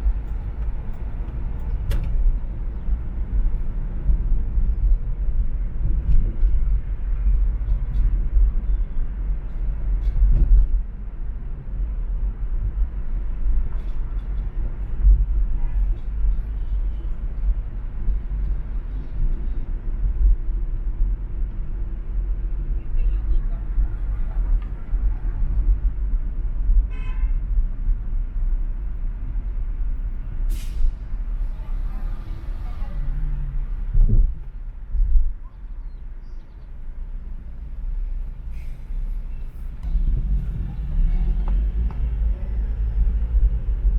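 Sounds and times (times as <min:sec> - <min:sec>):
road and traffic rumble: 0:00.0 - 0:43.9
vehicle horn toot: 0:26.9 - 0:27.4.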